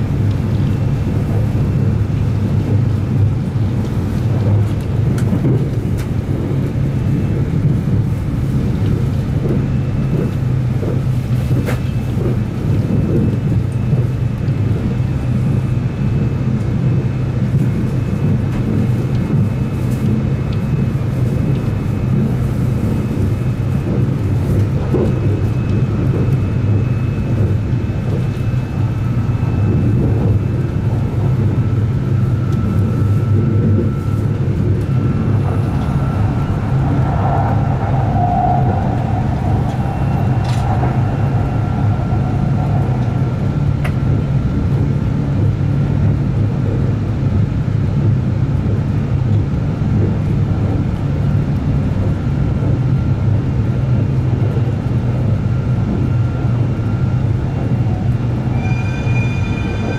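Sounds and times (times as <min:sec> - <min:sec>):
wheels rumbling on rails: 0:00.0 - 0:59.9
faint high tone: 0:58.5 - 0:59.9.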